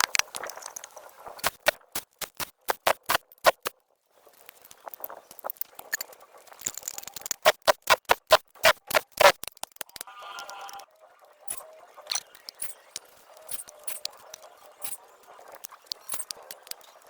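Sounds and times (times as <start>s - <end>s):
sharp irregular taps and clicks: 1.4s - 3.7s, 7.2s - 10.0s.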